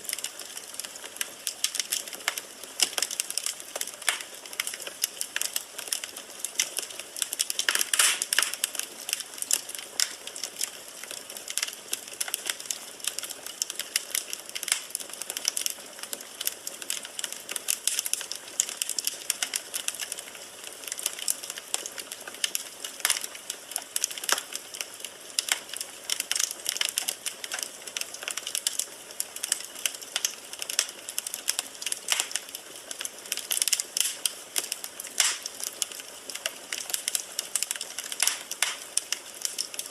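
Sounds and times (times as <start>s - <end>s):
soft fire hiss: 0.0s - 15.0s, 25.3s - 39.9s
fire crackling and popping: 0.0s - 39.9s.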